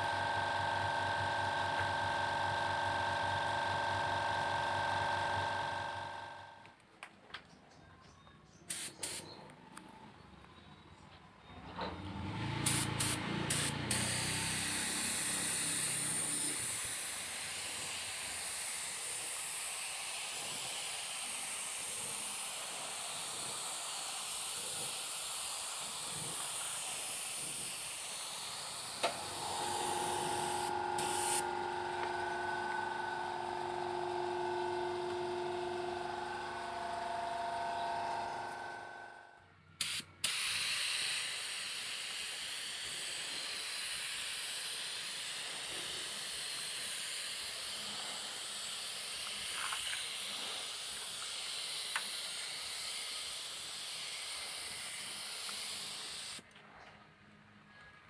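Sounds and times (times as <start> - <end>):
spray gun hissing: 8.7 - 9.3, 12.6 - 32.0, 39.8 - 56.4
multi-tone hum: 29.0 - 39.6.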